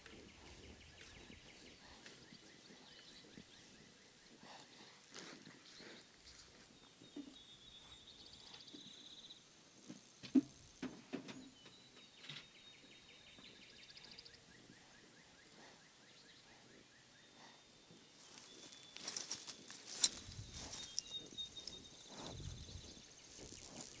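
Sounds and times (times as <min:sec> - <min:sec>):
songbirds singing trills and whistles: 0:11.3 - 0:24.0.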